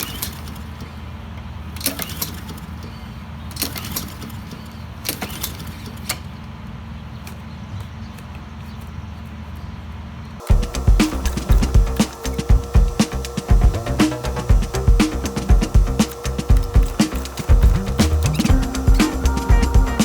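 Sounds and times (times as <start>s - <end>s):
music: 10.5s - 20.0s.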